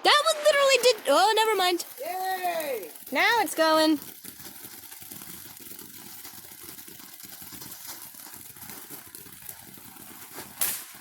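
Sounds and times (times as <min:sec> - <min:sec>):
firework hissing and crackling: 0:00.0 - 0:11.0.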